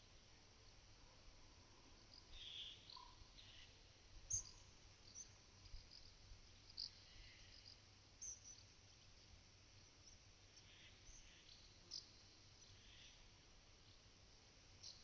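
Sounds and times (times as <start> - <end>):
small birds chirping: 2.1 - 9.2, 9.8 - 13.2.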